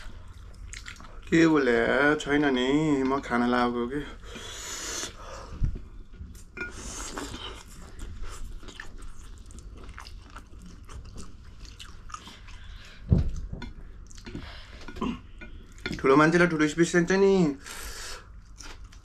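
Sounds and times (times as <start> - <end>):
chewing and biting food: 0.3 - 1.2, 6.2 - 13.0
low thump: 13.1 - 13.7.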